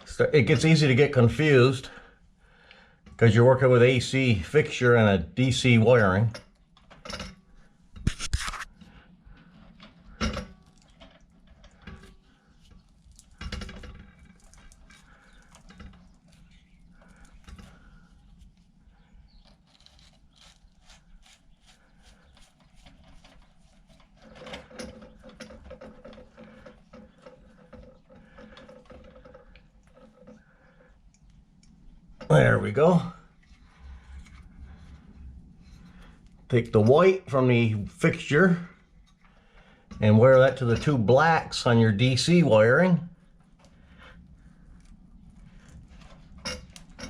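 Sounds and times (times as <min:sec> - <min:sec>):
wires clicking and rustling: 0:05.9 - 0:37.1, 0:43.3 - 0:47.0.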